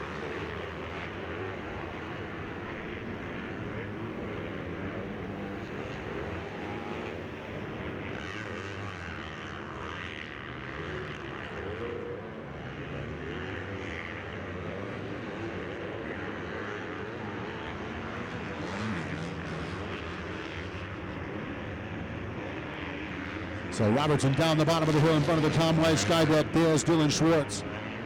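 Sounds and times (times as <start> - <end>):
motocross bike engines revving: 0.0 - 22.4, 23.2 - 28.0.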